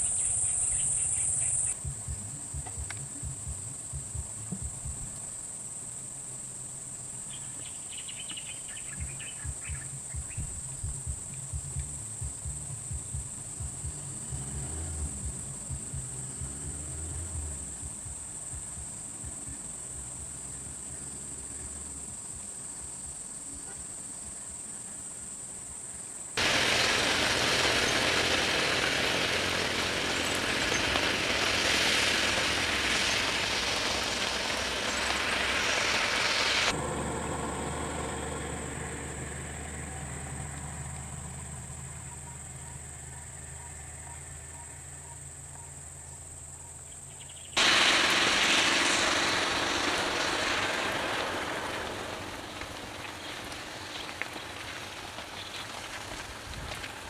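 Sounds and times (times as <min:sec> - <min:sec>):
insects buzzing: 0:00.0 - 0:57.0
loud even rushing noise: 0:26.4 - 0:37.5, 0:47.6 - 0:53.9.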